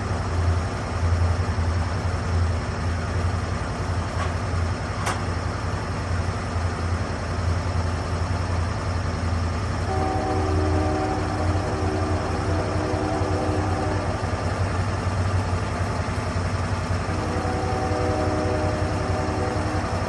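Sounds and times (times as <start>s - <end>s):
sawmill engine running: 0.1s - 20.0s
steady higher tone: 9.9s - 20.0s.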